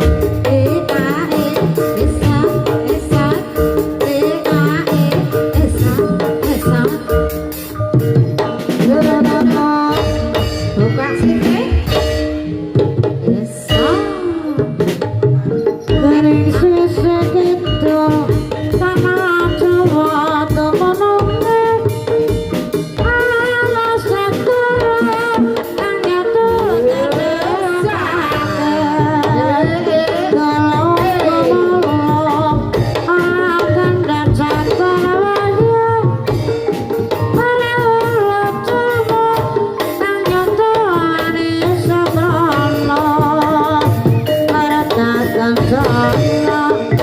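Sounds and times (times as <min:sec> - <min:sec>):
hand drum beats: 0:00.0 - 0:47.0
gamelan melody: 0:00.1 - 0:47.0
person singing: 0:13.2 - 0:22.0, 0:23.0 - 0:36.3, 0:37.1 - 0:47.0.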